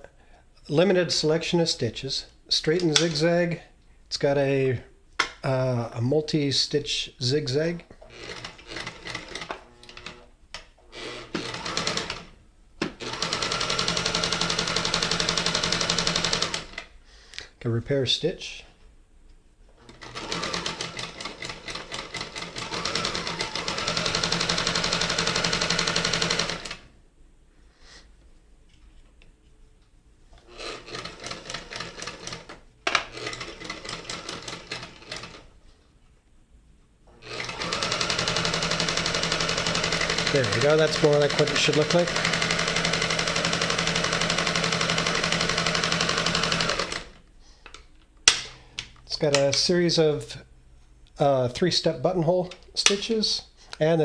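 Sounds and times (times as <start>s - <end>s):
sewing machine stitching: 8.1s - 10.3s, 10.9s - 12.3s, 12.9s - 16.8s, 19.8s - 26.9s, 30.4s - 35.5s, 37.1s - 47.2s.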